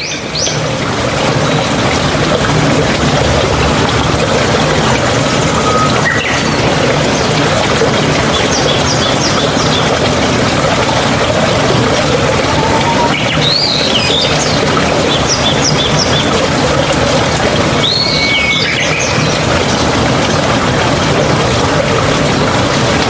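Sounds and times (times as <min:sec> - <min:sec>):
high bird chirps: 0:05.6 - 0:06.7.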